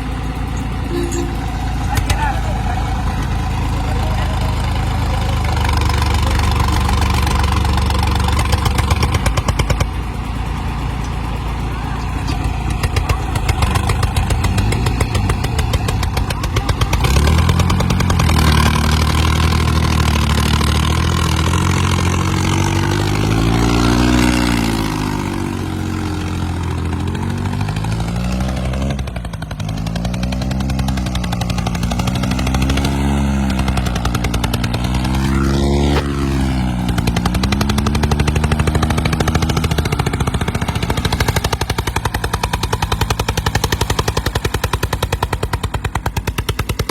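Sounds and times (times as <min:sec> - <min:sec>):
tractor engine revving under load: 0:00.0 - 0:46.9.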